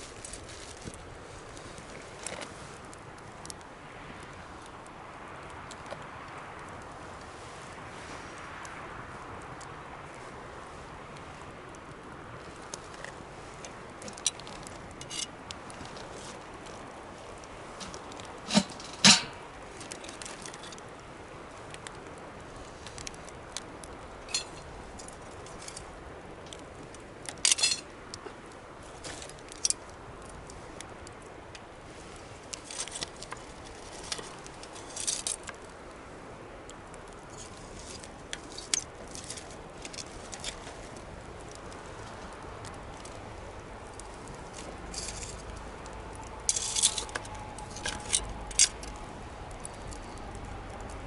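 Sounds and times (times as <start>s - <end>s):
campfire crackling: 0.0s - 51.0s
fire pops and snaps: 11.1s - 36.0s.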